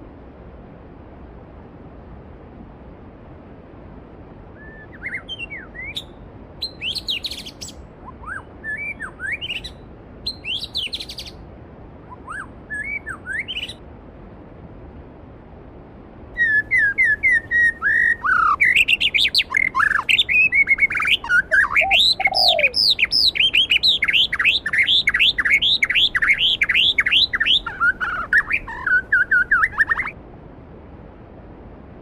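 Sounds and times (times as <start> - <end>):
flowing stream hiss: 0.0 - 30.2
songbird singing: 4.5 - 13.8, 16.4 - 30.2.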